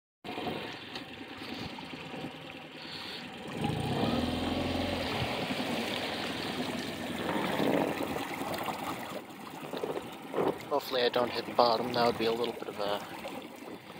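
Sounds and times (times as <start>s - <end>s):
outboard motor running: 0.2s - 13.9s
water rushing and splashing: 0.3s - 13.9s.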